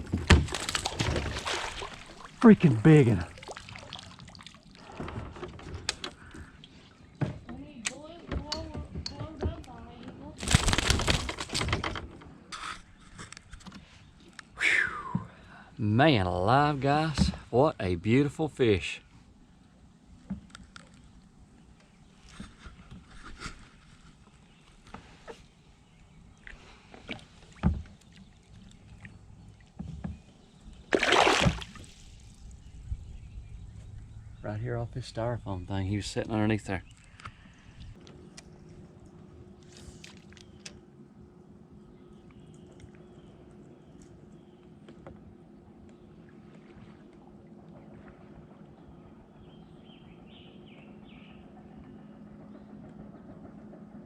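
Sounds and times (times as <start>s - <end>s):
water lapping against hull: 0.0s - 7.5s, 19.1s - 34.4s, 36.7s - 52.8s
low steady hum: 13.2s - 54.0s
bird chirping: 48.8s - 52.8s.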